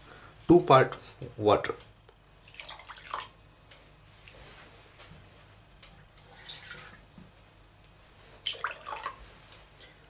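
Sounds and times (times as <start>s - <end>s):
water pouring into a bowl: 2.4s - 3.3s, 6.3s - 7.0s, 8.5s - 9.2s.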